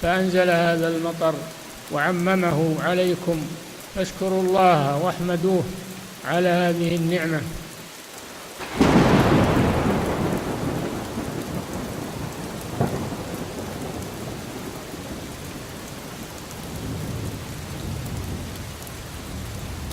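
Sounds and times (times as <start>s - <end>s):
steady rain: 0.0s - 19.9s
sharp thunder crack: 8.6s - 15.5s
thunder rumbling: 8.6s - 19.9s.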